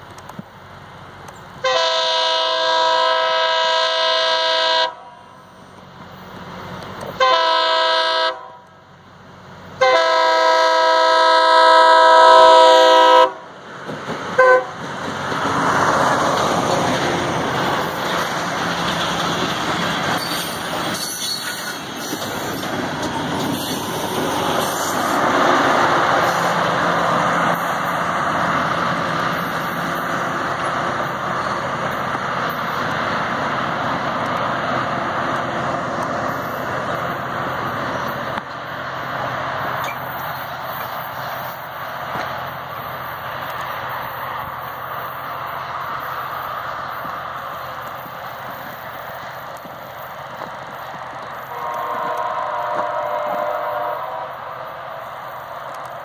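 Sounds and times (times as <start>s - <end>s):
train passing with engine rumble: 0.0s - 56.0s
train horn blasts: 1.6s - 5.4s, 7.2s - 8.7s, 9.8s - 13.5s, 14.4s - 14.8s, 51.4s - 54.5s.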